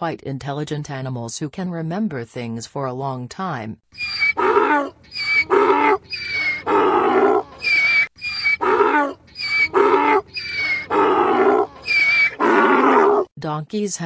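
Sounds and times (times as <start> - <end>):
large animal calling: 4.0 - 13.3.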